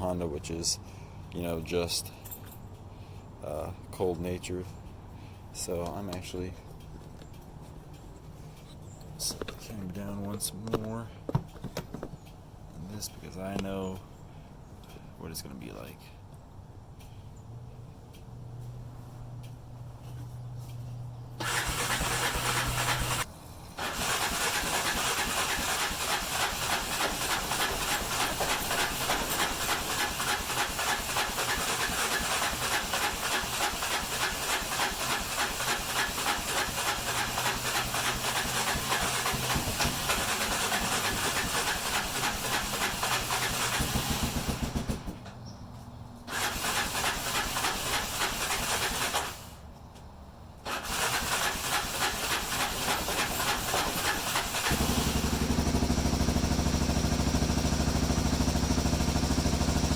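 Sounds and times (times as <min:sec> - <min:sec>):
electric starter cranking engine: 0:21.4 - 0:45.2, 0:46.3 - 0:49.6, 0:50.6 - 0:59.9.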